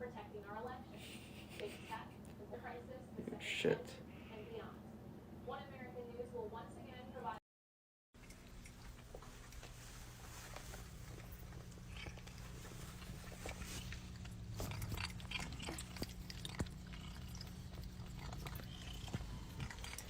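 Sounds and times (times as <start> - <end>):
cat chewing: 8.2 - 20.0.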